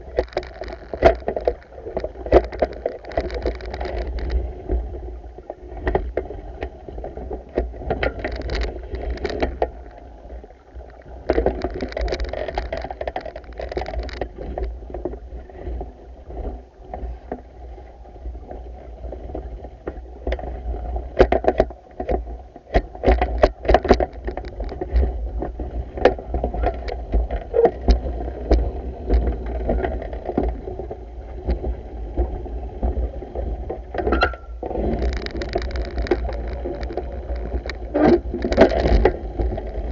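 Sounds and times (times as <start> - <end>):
water swishing and sloshing: 0.0 - 39.9
sharp clicks and knocks: 0.1 - 4.4, 7.5 - 9.8, 11.2 - 14.8, 21.2 - 30.6, 33.7 - 39.9.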